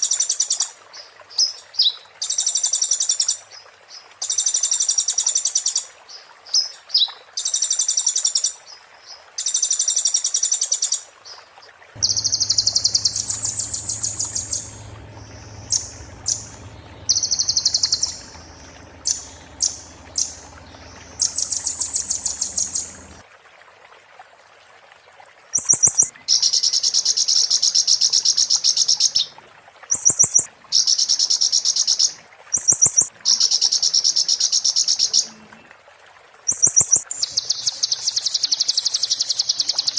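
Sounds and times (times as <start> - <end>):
songbird rattling trills: 12.0 - 23.2.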